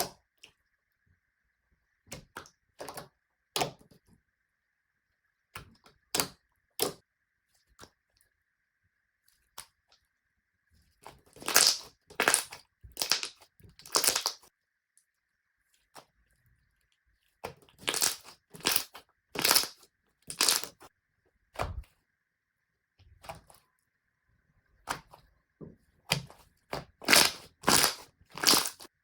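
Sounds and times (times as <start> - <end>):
slime pressed by hand: 27.0 - 28.8.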